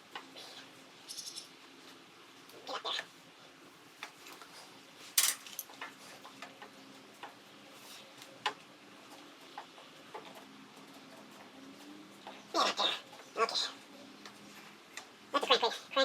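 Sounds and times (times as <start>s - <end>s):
clicks and taps of tools: 5.2s - 7.4s.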